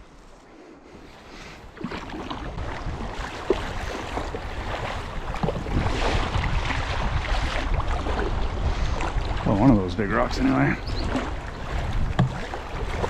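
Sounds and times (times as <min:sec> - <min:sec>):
river water rushing around kayak: 0:00.0 - 0:13.0
wind rumbling on microphone: 0:00.0 - 0:13.0.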